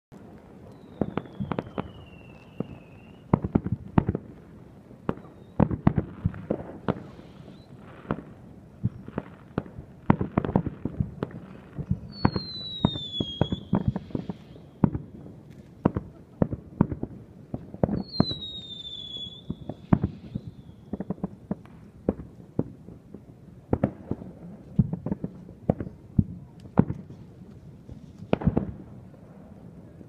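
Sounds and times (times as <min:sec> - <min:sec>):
fireworks bangs and pops: 0:00.1 - 0:29.8
firework falling whistle: 0:00.7 - 0:03.6, 0:05.1 - 0:05.9, 0:06.9 - 0:07.8, 0:11.8 - 0:15.1, 0:17.9 - 0:21.1.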